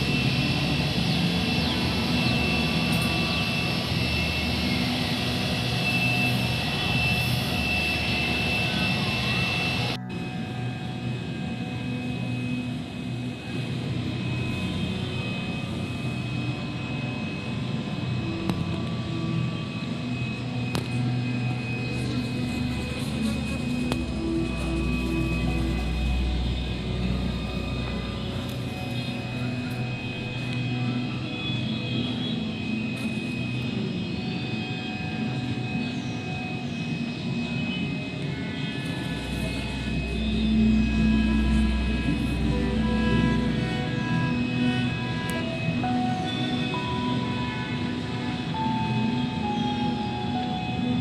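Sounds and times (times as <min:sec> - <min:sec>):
low mechanical drone: 0:00.0 - 0:51.0
thin high tones: 0:19.9 - 0:51.0
low rumble: 0:38.9 - 0:45.6.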